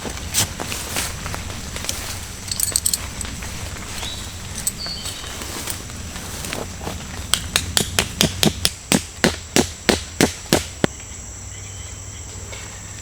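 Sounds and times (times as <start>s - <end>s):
insects buzzing: 0.0s - 13.0s
sharp hammering knocks: 7.3s - 10.9s.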